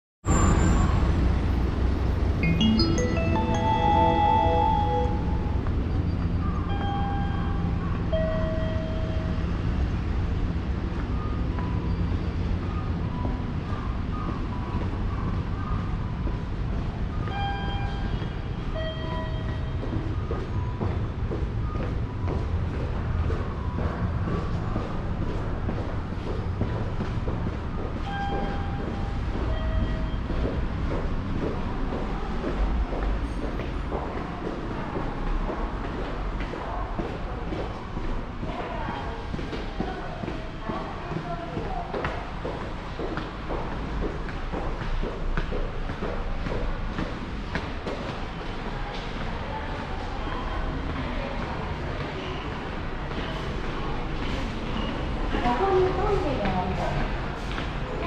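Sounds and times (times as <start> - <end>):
subway train rumbling: 0.3 - 58.0
faint short high tones: 2.4 - 6.0.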